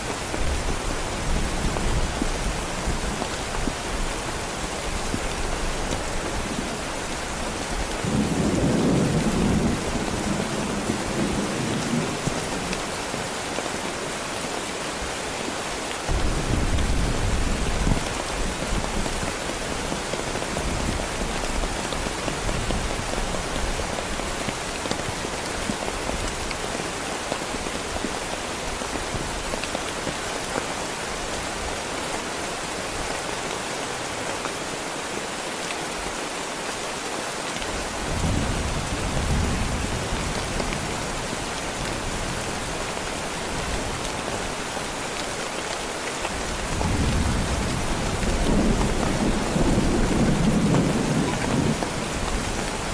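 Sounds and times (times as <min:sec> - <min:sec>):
heavy rain hissing: 0:00.0 - 0:52.9
rolling thunder rumbles: 0:08.0 - 0:12.7, 0:46.7 - 0:52.5.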